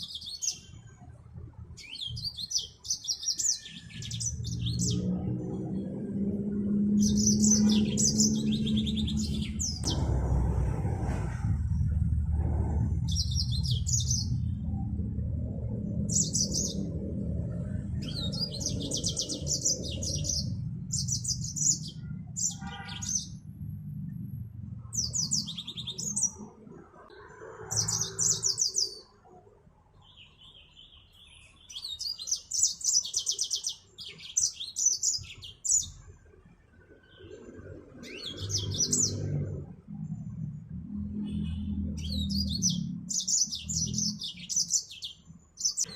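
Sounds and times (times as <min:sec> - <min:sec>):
finch twittering song: 0:00.0 - 0:00.9, 0:01.8 - 0:10.6, 0:12.4 - 0:14.9, 0:15.7 - 0:23.5, 0:24.8 - 0:29.2, 0:30.0 - 0:36.1, 0:37.0 - 0:39.5, 0:40.9 - 0:45.9
low rumble: 0:05.2 - 0:22.3.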